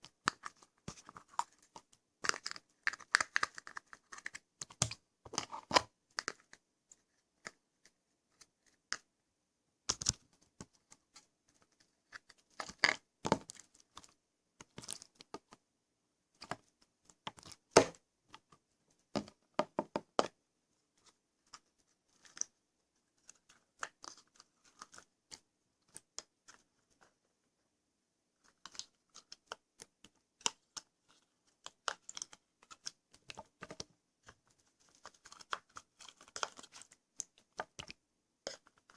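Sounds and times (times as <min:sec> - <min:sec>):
slime clicking and crackling: 0:00.0 - 0:06.6, 0:28.5 - 0:33.9, 0:34.8 - 0:38.9.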